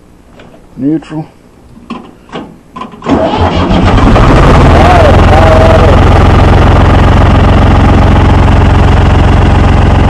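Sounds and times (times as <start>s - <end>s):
tractor engine running: 2.7s - 10.0s.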